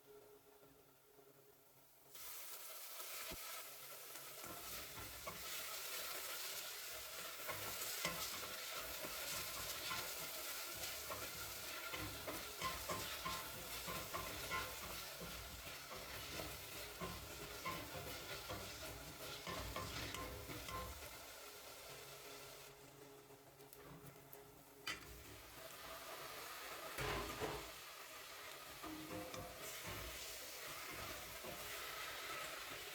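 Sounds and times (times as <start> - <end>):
food sizzling in a pan: 2.0 - 32.9
spoon scraping and tapping pan: 7.4 - 21.1, 27.0 - 27.8, 28.5 - 32.9.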